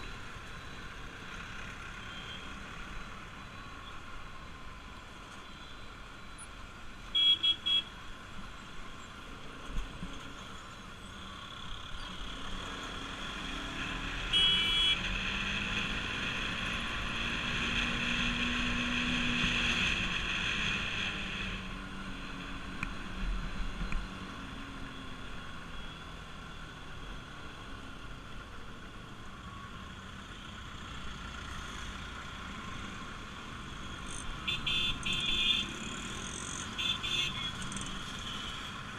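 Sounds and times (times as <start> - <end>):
motorcycle engine and road noise: 0.0 - 38.9
horn toots: 34.4 - 35.8.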